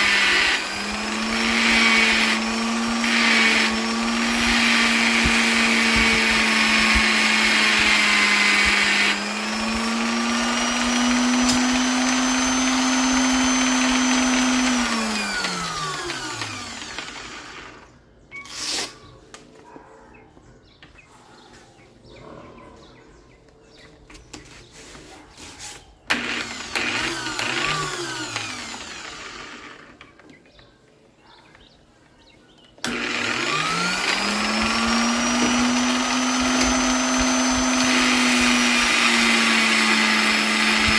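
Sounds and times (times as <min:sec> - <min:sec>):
electric polisher motor whine: 0:00.0 - 0:17.9, 0:26.1 - 0:29.9, 0:32.9 - 0:40.9.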